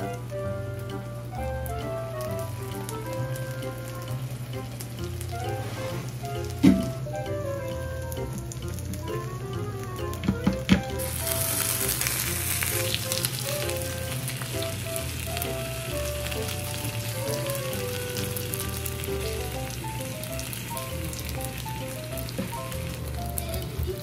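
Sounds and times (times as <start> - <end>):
soft background music: 0.0 - 24.0
dumplings sizzling in oil: 10.8 - 24.0.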